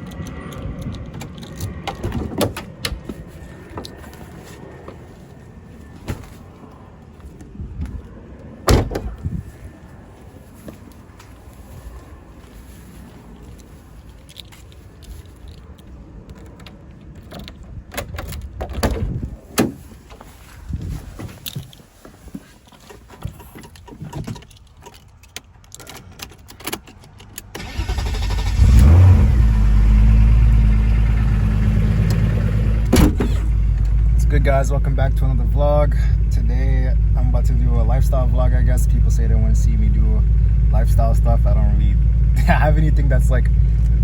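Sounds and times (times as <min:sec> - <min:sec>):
car engine starting and idling: 0:26.1 - 0:44.0.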